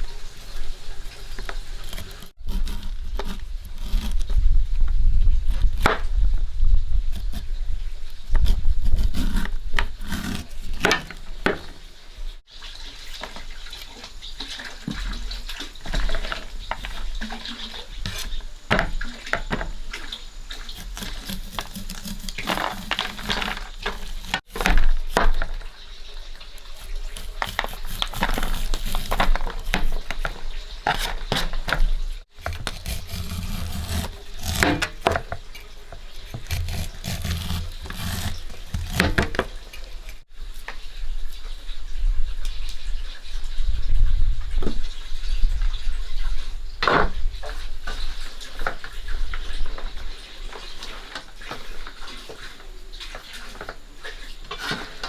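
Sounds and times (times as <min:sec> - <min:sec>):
water running and splashing: 0:00.0 - 0:02.5, 0:07.6 - 0:55.0
knocks and clatters of objects: 0:20.8 - 0:25.8, 0:27.2 - 0:40.2.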